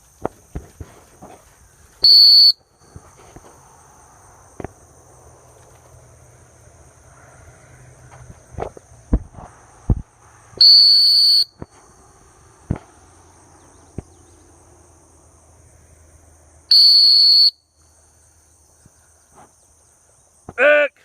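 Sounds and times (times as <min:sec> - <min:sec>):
insects buzzing: 0:00.0 - 0:21.0
shrill dog whistle blasts: 0:02.0 - 0:02.6, 0:10.6 - 0:11.6, 0:16.7 - 0:17.6.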